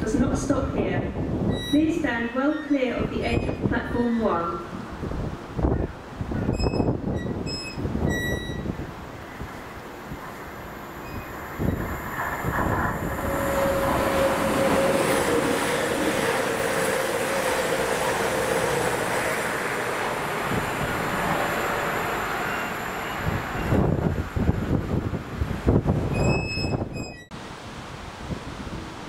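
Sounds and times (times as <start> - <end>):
train rumble and rail noise: 0.0 - 29.0.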